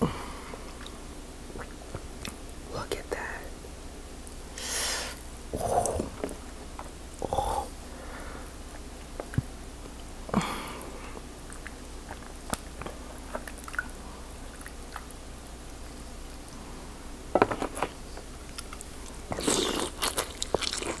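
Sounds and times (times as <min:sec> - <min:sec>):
chewing and mouth sounds: 0:00.7 - 0:02.4, 0:08.7 - 0:10.1, 0:10.7 - 0:16.6, 0:18.4 - 0:21.0.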